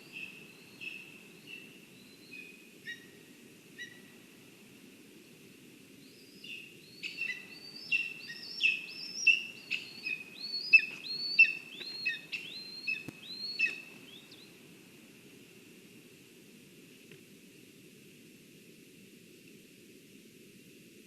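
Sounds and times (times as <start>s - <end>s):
steady low hiss: 0.0s - 21.0s
bird calling sharp notes: 7.0s - 14.4s.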